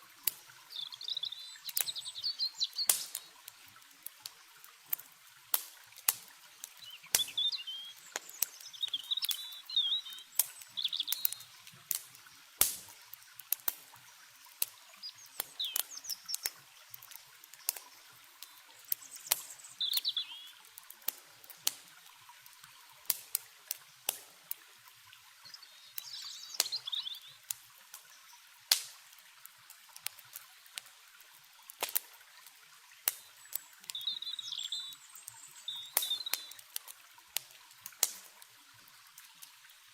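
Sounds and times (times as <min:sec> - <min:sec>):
campfire crackling and popping: 0:00.0 - 0:39.9
flowing river water: 0:00.0 - 0:39.9
birds chirping: 0:00.4 - 0:03.4, 0:06.5 - 0:11.6, 0:14.0 - 0:20.7, 0:25.4 - 0:27.4, 0:33.3 - 0:36.6.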